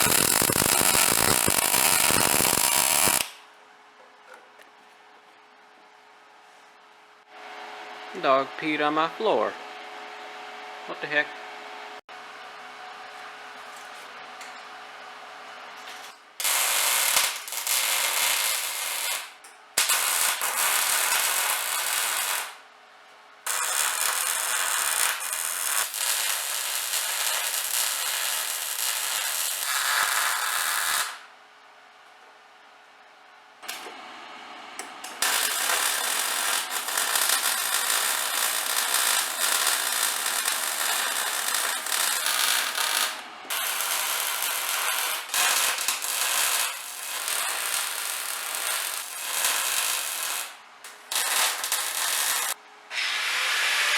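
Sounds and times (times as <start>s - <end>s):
arc welder crackling hiss: 0.0s - 3.4s, 16.0s - 22.6s, 23.5s - 31.3s, 34.8s - 53.9s.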